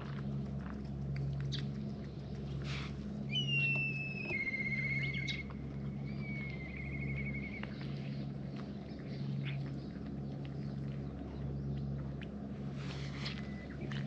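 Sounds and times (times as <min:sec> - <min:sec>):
low steady hum: 0:00.0 - 0:14.0
bird whistling call: 0:03.3 - 0:05.4, 0:06.0 - 0:07.7.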